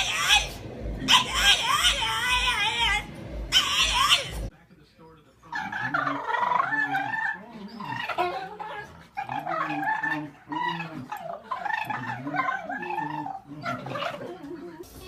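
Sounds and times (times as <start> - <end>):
dog whining and howling: 0.0 - 4.5
high-pitched scream: 0.0 - 4.5.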